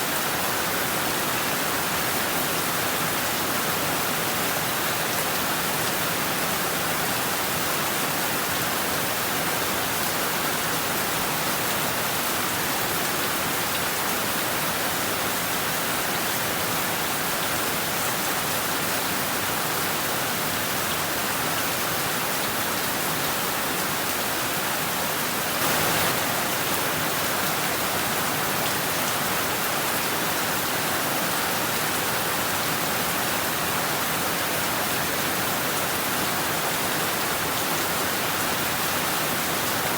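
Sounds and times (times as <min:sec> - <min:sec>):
heavy rain on roofs and trees: 0:00.0 - 0:39.9.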